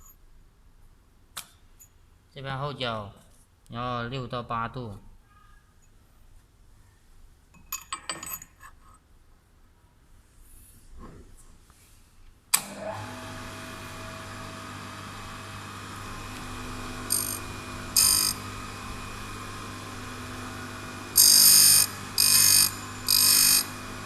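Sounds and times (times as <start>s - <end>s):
grinder motor humming: 12.7s - 24.0s.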